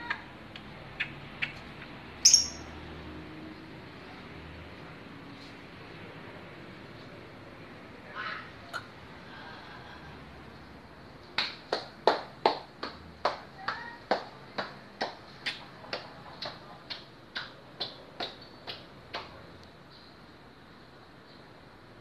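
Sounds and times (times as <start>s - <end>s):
bird chirping: 1.0s - 2.7s.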